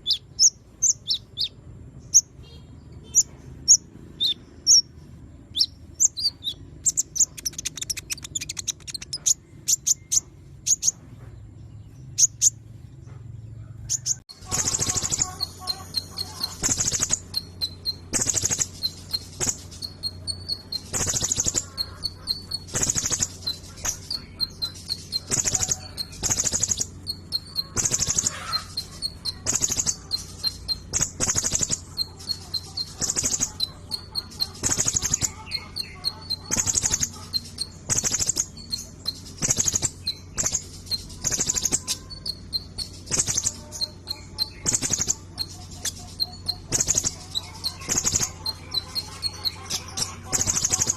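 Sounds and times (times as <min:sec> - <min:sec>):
sunbird twittering chirps: 0:00.0 - 0:12.8, 0:13.9 - 0:50.9
loud high chirps: 0:14.3 - 0:50.9.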